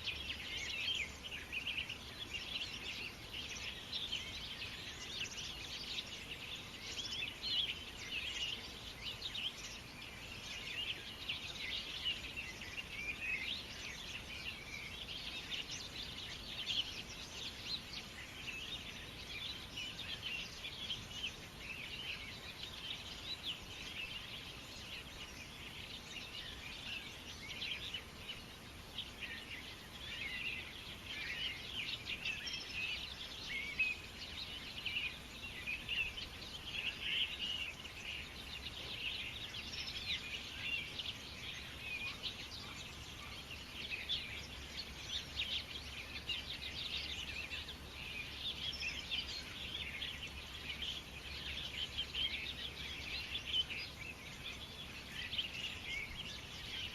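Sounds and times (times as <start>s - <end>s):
low steady hiss: 0.0s - 56.9s
small birds chirping and twittering: 0.0s - 56.9s.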